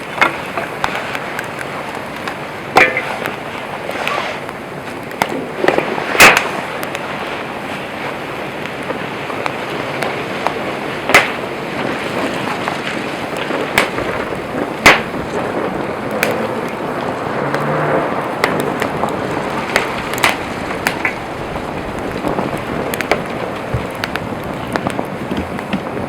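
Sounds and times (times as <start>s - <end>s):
burning wood crackles and pops: 0.0s - 26.0s
rushing hiss of flame: 0.0s - 26.0s.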